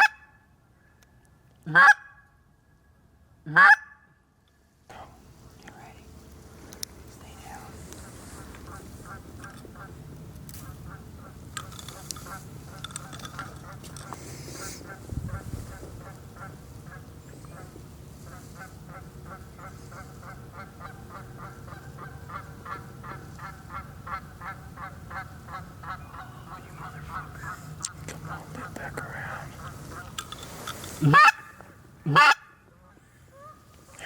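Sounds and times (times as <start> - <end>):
geese honking: 1.7 - 2.2, 3.5 - 4.0, 7.9 - 10.0, 10.6 - 28.8, 29.4 - 33.7.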